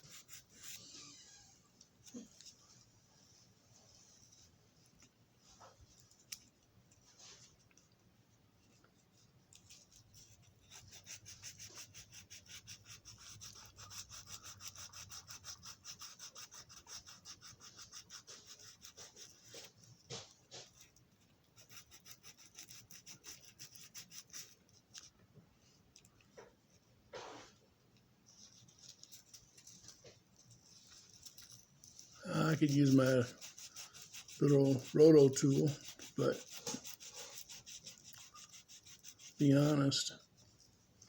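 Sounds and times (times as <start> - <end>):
sandpaper scratching metal wheels: 10.1 - 20.9, 21.6 - 24.6, 30.7 - 40.2.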